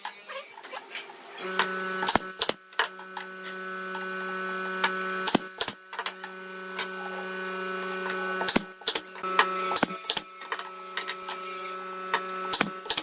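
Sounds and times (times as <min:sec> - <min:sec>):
small electric motor humming: 0:00.0 - 0:13.0
sharp clicks and knocks: 0:08.1 - 0:11.4.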